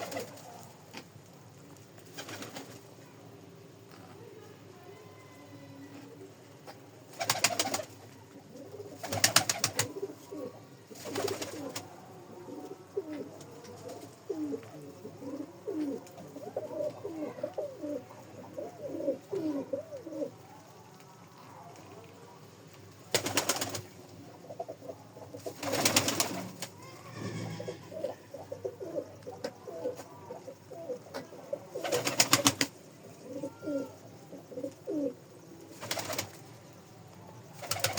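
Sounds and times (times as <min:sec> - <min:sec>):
pigeons cooing: 0:00.0 - 0:00.7, 0:05.9 - 0:20.5, 0:23.1 - 0:36.3, 0:37.6 - 0:37.9.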